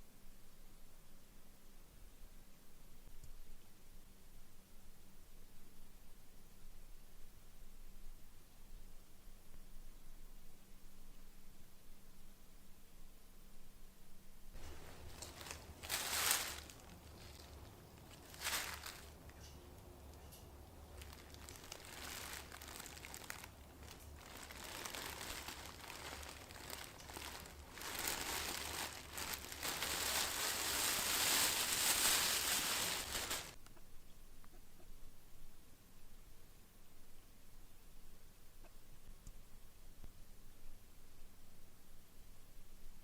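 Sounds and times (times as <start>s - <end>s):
low steady hum: 0.0s - 43.0s
rustling and crinkling: 14.5s - 33.7s.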